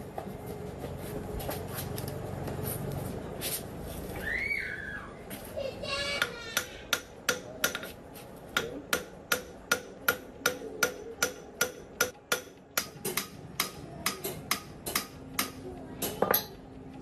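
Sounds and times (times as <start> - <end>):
hammer striking metal: 6.2 - 16.6.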